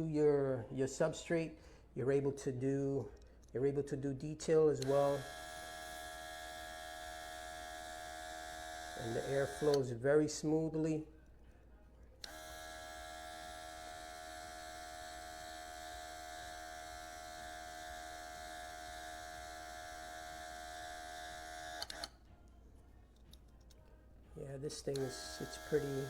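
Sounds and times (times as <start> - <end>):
compressor motor hum: 4.7 - 10.0, 12.2 - 22.2, 24.7 - 26.0.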